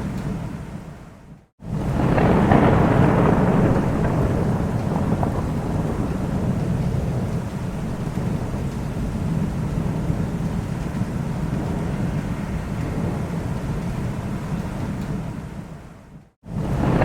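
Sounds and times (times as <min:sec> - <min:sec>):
steady rain: 0:00.0 - 0:17.0
thunder rumbling: 0:01.6 - 0:17.0.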